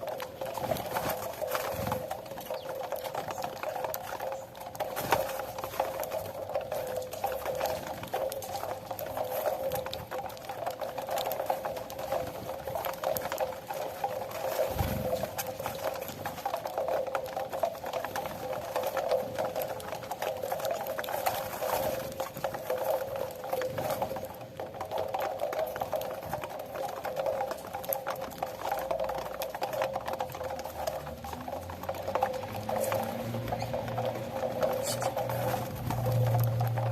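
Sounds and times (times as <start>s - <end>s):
finches chirping: 1.7s - 4.4s, 34.6s - 35.6s.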